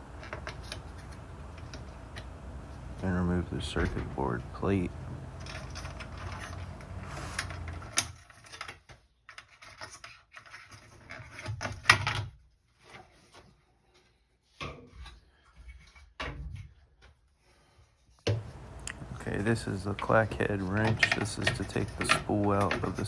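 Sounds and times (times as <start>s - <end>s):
hands rubbing plastic parts: 0.0s - 8.0s, 18.3s - 23.0s
sharp clicks and knocks: 0.0s - 8.1s, 18.3s - 23.0s.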